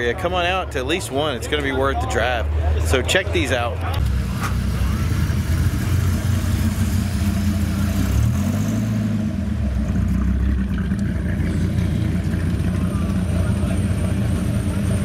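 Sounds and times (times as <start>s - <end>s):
car engine running at low speed: 3.7s - 15.0s.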